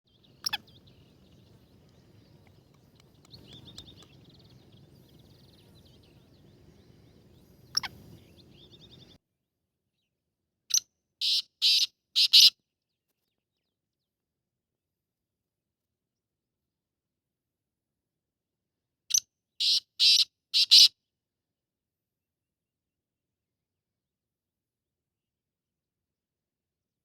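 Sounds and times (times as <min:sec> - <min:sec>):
small birds chirping: 0:00.1 - 0:09.2, 0:10.7 - 0:12.5, 0:19.1 - 0:20.9
harsh bird call: 0:19.6 - 0:20.9.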